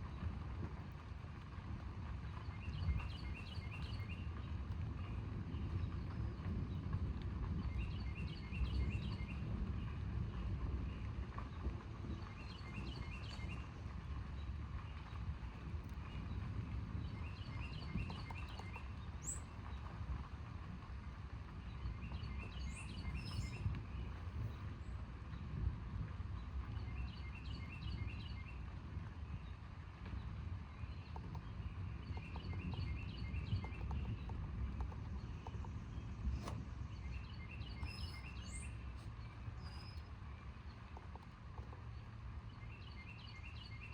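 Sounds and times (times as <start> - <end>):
low rumble of storm: 0.0 - 43.9
songbird chirping: 30.8 - 43.9.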